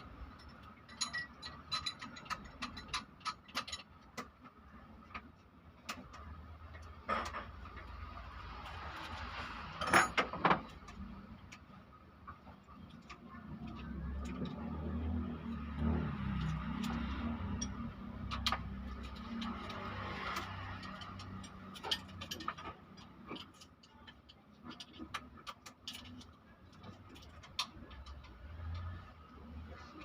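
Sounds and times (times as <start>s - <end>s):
metal tools clinking: 0.1s - 3.9s.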